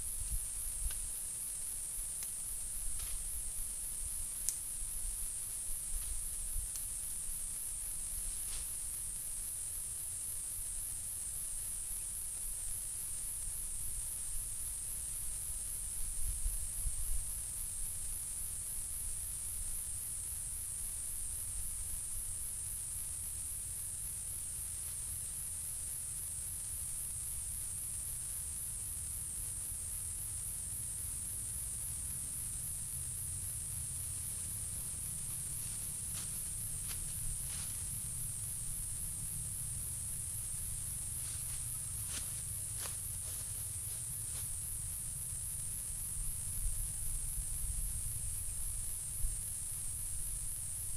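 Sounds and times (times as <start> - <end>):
high-pitched insect chorus: 0.0 - 50.9.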